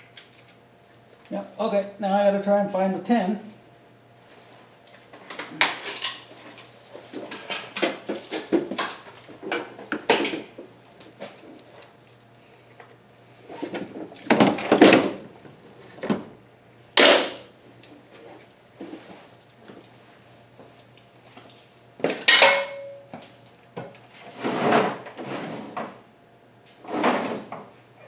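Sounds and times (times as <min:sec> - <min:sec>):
drawer scraping slide: 0:24.2 - 0:26.0, 0:26.8 - 0:27.7.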